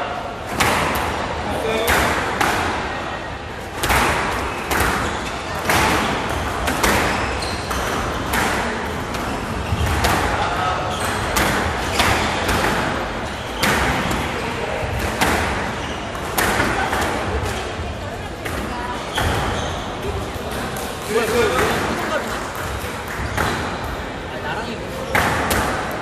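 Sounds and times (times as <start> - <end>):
squash ball struck by rackets: 0.4 - 3.0, 3.7 - 17.6, 22.8 - 24.0, 25.0 - 26.0
ball bouncing off court walls: 3.8 - 17.6, 20.7 - 24.0.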